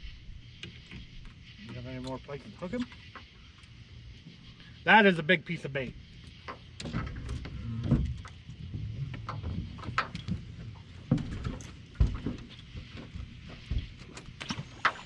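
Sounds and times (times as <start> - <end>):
dull thumps against hull: 6.4 - 15.0.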